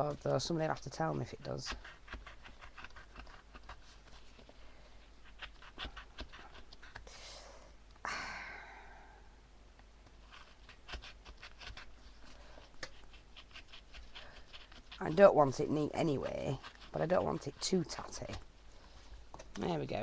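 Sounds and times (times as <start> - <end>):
blade clicking and scratching chipboard: 0.0 - 4.2, 5.2 - 7.0, 10.3 - 18.5.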